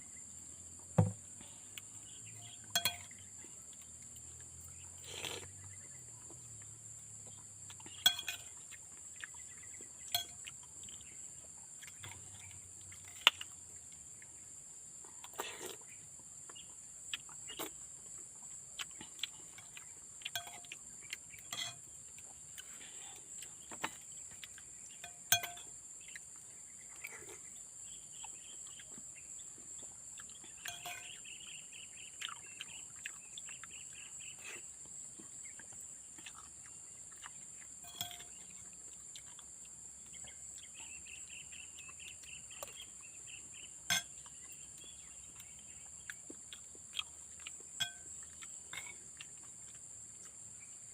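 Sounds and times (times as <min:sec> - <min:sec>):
insects droning: 0:00.0 - 0:50.9
spoon clinking against plate: 0:02.7 - 0:03.2, 0:08.0 - 0:08.6, 0:10.1 - 0:10.4, 0:20.3 - 0:20.7, 0:21.5 - 0:21.8, 0:25.0 - 0:25.8, 0:30.6 - 0:31.2, 0:37.8 - 0:38.4, 0:43.9 - 0:44.2, 0:47.8 - 0:48.1.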